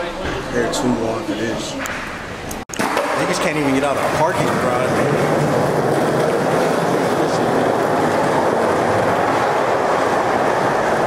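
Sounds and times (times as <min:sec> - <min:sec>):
skateboard wheels rolling on pavement: 0:02.8 - 0:11.0.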